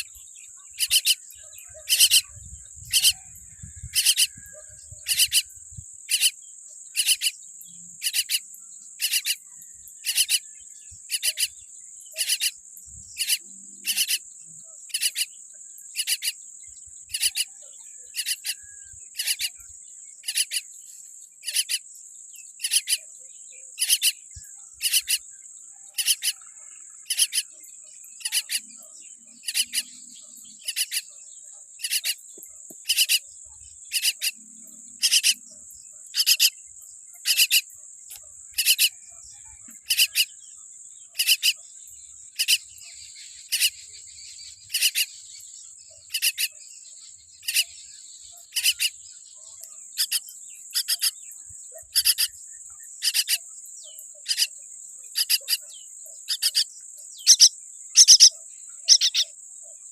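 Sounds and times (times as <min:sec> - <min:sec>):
bird chick calling: 0:00.7 - 0:06.4, 0:26.0 - 0:26.4, 0:51.8 - 0:52.4, 0:56.3 - 0:59.3.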